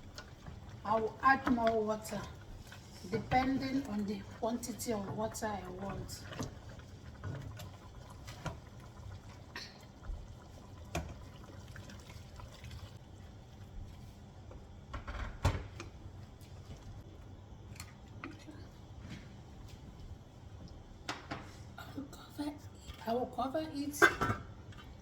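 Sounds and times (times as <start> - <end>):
water pouring into a pot: 0.0 - 13.7.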